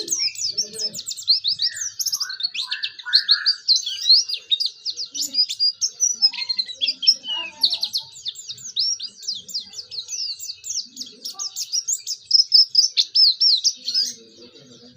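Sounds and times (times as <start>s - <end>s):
bird twittering song: 0.0s - 14.9s.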